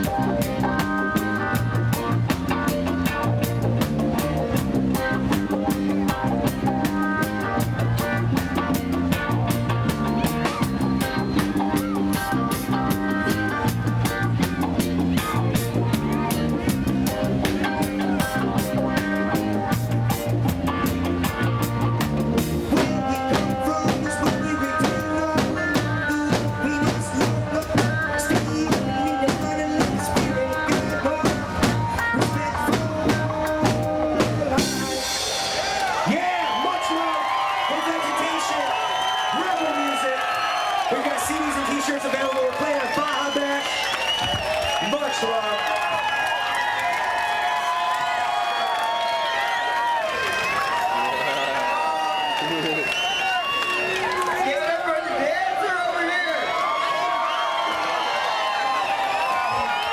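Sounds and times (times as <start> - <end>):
guitar: 0.0 - 35.9
bass line: 0.0 - 36.1
drum kit with rimshots: 0.0 - 36.4.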